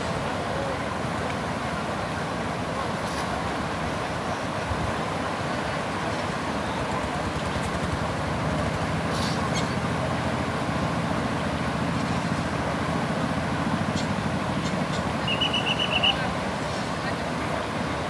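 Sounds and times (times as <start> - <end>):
vehicle engine running: 6.6 - 15.9.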